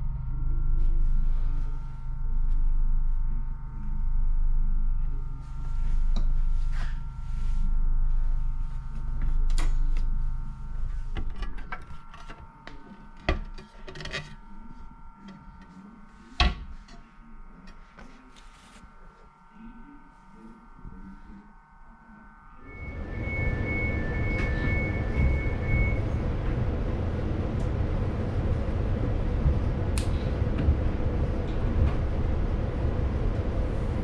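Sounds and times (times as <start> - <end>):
steady whine: 0.0 - 34.0
train carriage rumble: 22.8 - 34.0.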